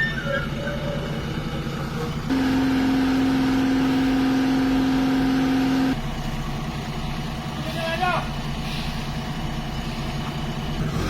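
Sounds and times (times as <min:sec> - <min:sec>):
heavy vehicle engine running: 0:00.0 - 0:11.0
loud steady horn note: 0:02.3 - 0:06.0.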